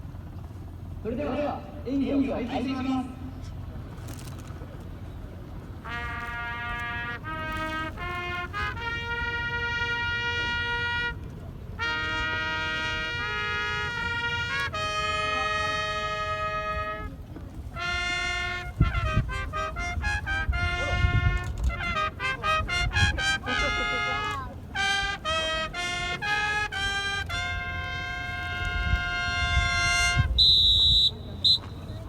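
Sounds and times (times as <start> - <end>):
trumpet call: 5.7 - 32.0
heavy low thuds: 17.8 - 23.4.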